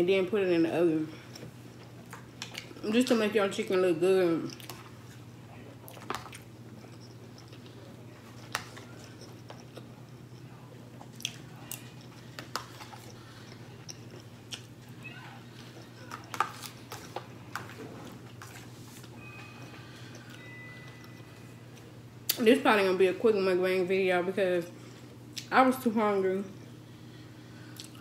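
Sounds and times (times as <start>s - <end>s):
steady low hum: 0.0s - 28.0s
person chewing food: 1.2s - 2.8s, 4.5s - 22.4s, 27.5s - 28.0s.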